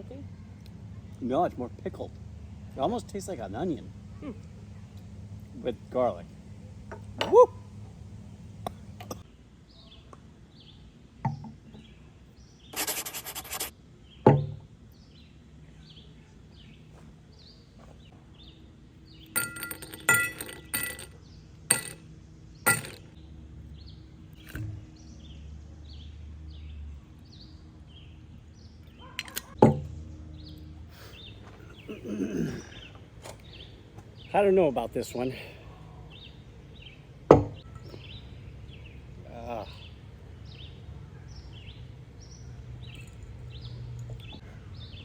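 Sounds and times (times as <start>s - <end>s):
bird chirping: 0.0s - 45.0s
glass clinking: 19.4s - 22.0s, 22.7s - 23.1s.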